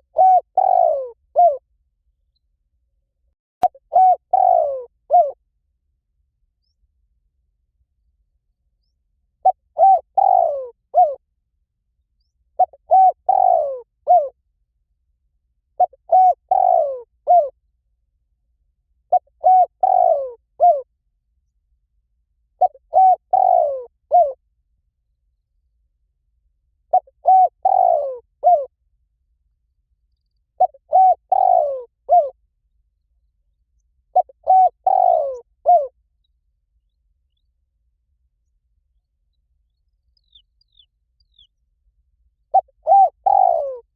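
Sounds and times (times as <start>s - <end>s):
dove cooing: 0.0s - 1.6s, 3.6s - 5.4s, 9.4s - 11.2s, 12.6s - 14.4s, 15.8s - 17.6s, 19.1s - 20.9s, 22.6s - 24.4s, 26.9s - 28.7s, 30.6s - 32.4s, 34.1s - 36.0s, 42.5s - 43.9s.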